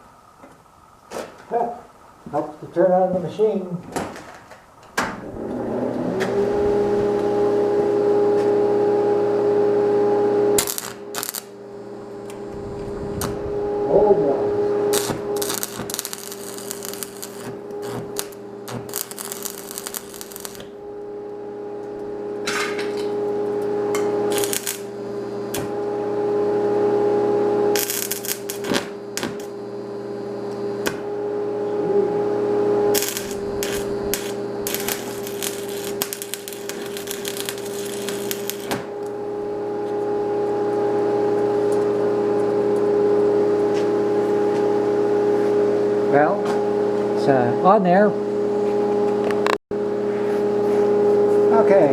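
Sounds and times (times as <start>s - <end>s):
electric welder humming: 4.2s - 51.9s
welding arc sputtering: 10.5s - 11.6s, 12.2s - 25.9s, 27.7s - 29.6s, 32.8s - 39.4s.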